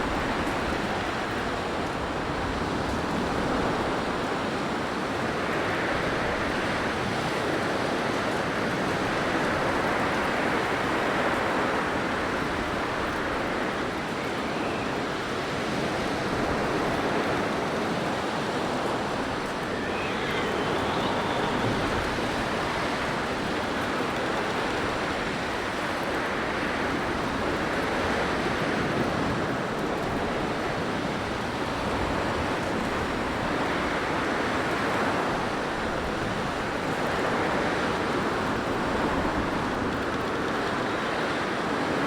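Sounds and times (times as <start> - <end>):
blizzard wind rushing: 9.0 - 25.6.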